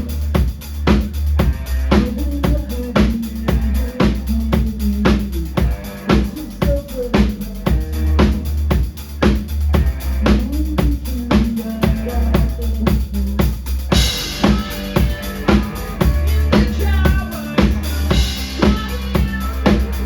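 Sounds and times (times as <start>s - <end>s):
drum kit beat: 0.0s - 20.0s
rock band playing: 0.0s - 20.0s
crashing cymbals: 13.7s - 20.0s
bright electric guitar: 13.9s - 20.0s.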